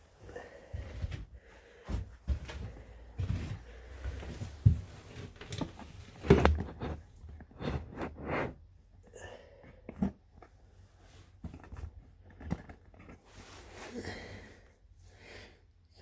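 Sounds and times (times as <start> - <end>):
rustling: 10.0 - 14.0.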